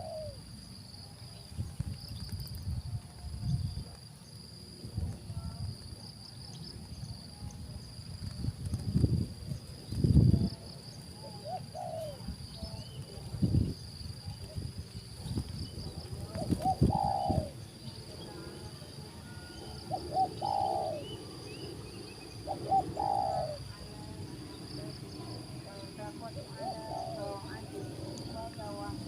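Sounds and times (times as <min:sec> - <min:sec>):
dove cooing: 0:00.0 - 0:00.4, 0:11.2 - 0:13.3, 0:16.2 - 0:21.6, 0:22.4 - 0:29.0
high-pitched insect drone: 0:00.0 - 0:29.0.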